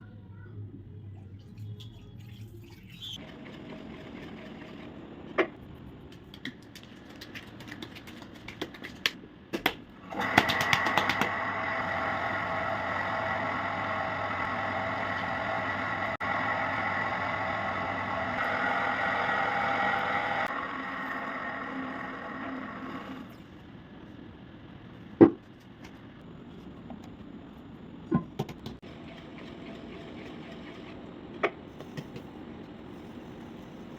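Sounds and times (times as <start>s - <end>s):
potter's wheel motor whining: 10.0s - 23.5s.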